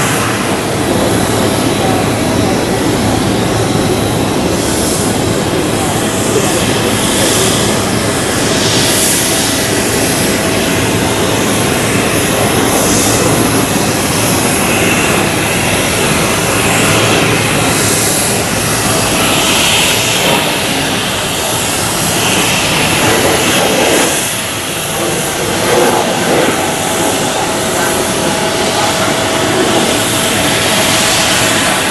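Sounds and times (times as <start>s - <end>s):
jet engines running: 0.0s - 31.9s.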